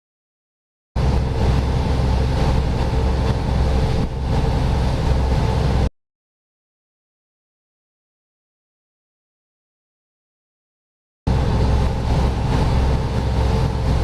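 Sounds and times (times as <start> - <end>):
boat engine drone: 1.0 - 5.9, 11.3 - 14.0.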